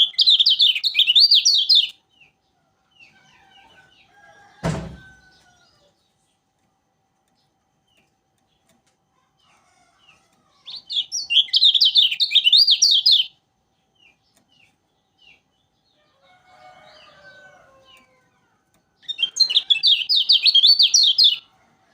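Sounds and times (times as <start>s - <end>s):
songbird chirping and singing: 0.0s - 21.9s.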